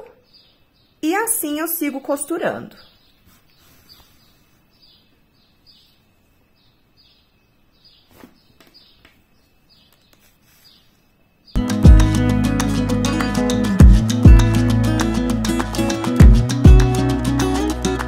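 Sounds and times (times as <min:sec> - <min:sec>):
faint bird chirps: 0:02.7 - 0:11.6.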